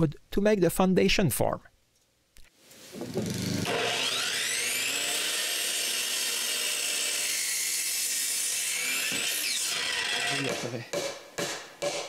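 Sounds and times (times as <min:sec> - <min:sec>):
power saw cutting wood: 0:03.0 - 0:10.8.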